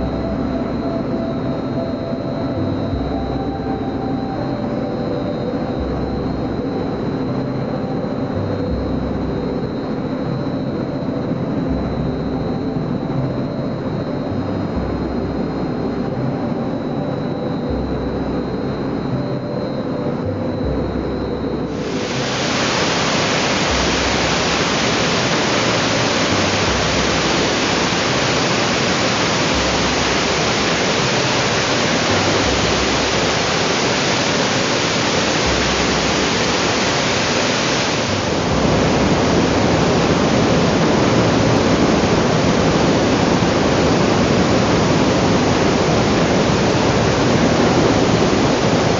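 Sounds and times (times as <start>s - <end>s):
machine mechanical hum: 0.0s - 48.9s
loud even rushing noise: 21.7s - 48.9s.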